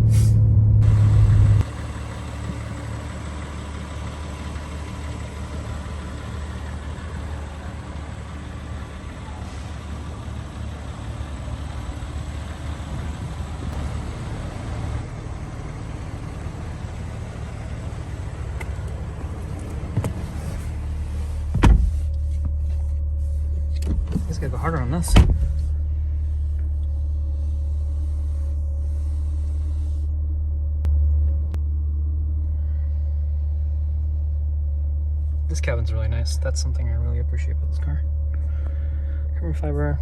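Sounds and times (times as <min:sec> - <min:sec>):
loud engine note: 0:00.0 - 0:21.5
road noise: 0:00.0 - 0:31.6
car engine hum: 0:00.0 - 0:40.0.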